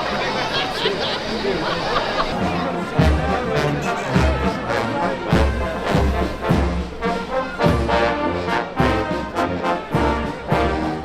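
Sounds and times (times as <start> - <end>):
marching brass band playing: 2.3 - 11.0
bass drum beat: 2.4 - 4.7.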